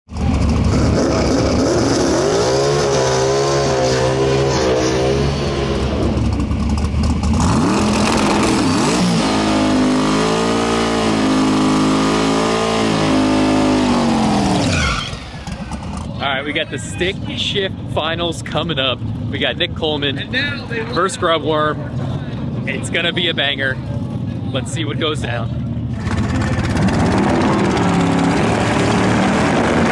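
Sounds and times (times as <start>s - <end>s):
drag racing car engine revving: 0.1s - 16.1s, 25.8s - 29.9s.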